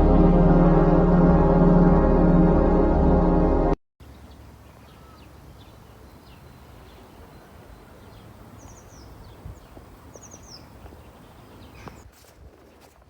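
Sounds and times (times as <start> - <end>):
low outdoor rumble: 0.0 - 4.8
faint birds chirping: 4.0 - 12.1.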